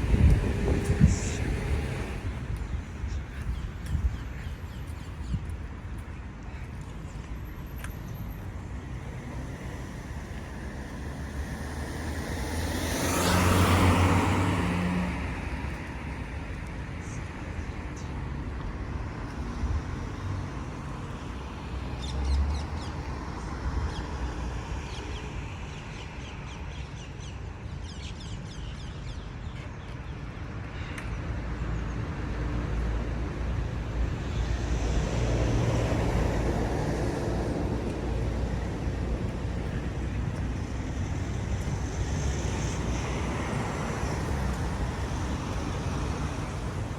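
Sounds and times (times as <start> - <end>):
vehicle passing close: 0.0 - 2.6, 9.5 - 15.4
street traffic rumble: 0.0 - 46.9.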